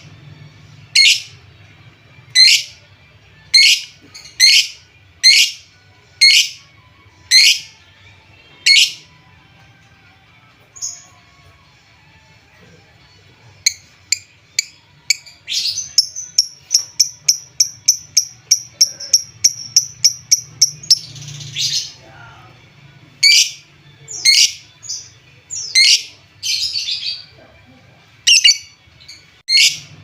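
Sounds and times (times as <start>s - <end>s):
harsh bird calls: 0.9s - 1.3s, 2.3s - 2.8s, 3.5s - 5.6s, 23.2s - 27.3s
bird chirping: 0.9s - 1.4s, 2.3s - 2.8s, 3.5s - 5.6s, 6.2s - 6.6s, 7.3s - 7.7s, 13.7s - 22.0s, 23.2s - 27.3s, 28.3s - 29.9s.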